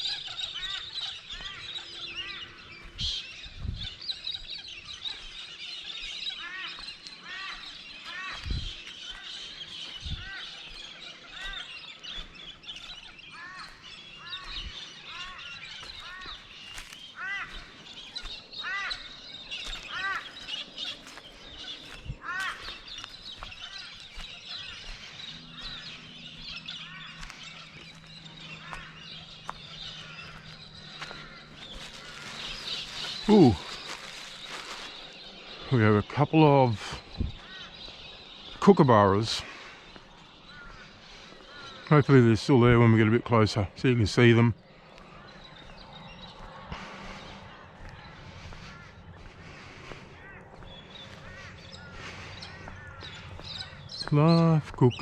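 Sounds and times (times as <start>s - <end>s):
birds calling: 0.0s - 55.0s
bird repeating rising-falling call: 13.0s - 35.7s.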